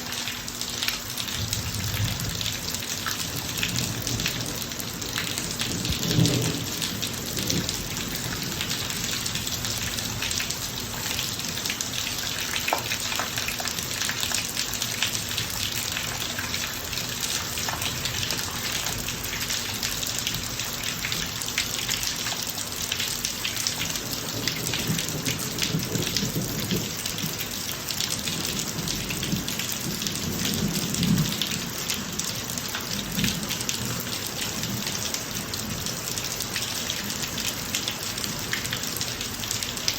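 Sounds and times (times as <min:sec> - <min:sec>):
rain on a driveway: 0:00.0 - 0:39.9
distant thunder rumbling: 0:01.4 - 0:10.1.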